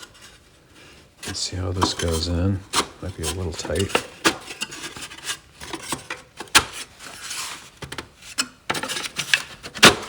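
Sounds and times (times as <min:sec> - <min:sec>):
wood scraping against wood: 0:00.0 - 0:07.8.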